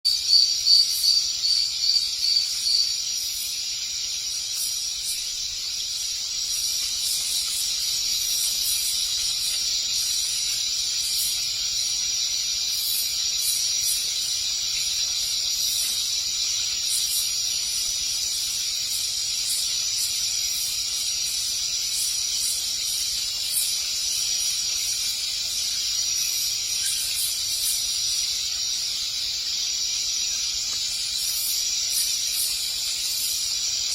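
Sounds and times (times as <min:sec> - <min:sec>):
steady high-pitched hiss: 0:00.1 - 0:33.9.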